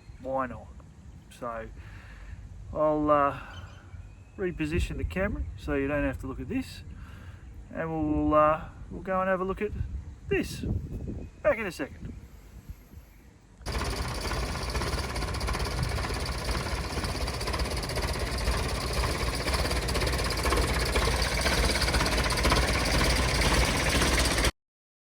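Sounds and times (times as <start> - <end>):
tractor engine idling: 13.6 - 24.5.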